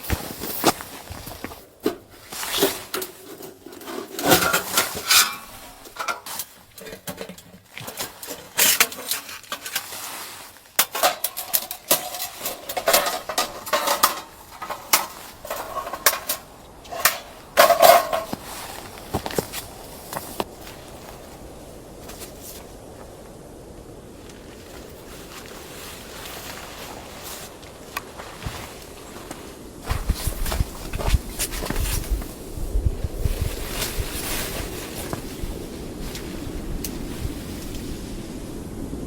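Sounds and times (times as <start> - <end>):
dishes and utensils clinking: 3.8 - 7.5.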